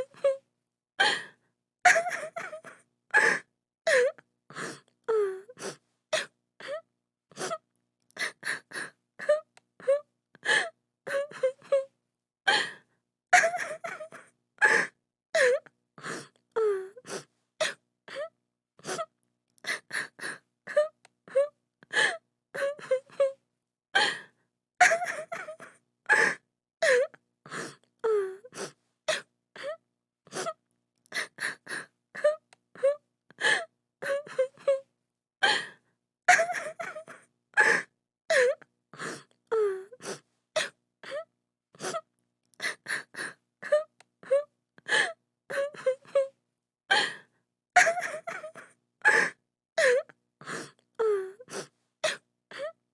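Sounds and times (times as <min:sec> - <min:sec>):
woman crying and sobbing: 0:01.9 - 0:04.1, 0:13.4 - 0:15.6, 0:24.8 - 0:27.1, 0:36.3 - 0:38.6, 0:47.8 - 0:50.0.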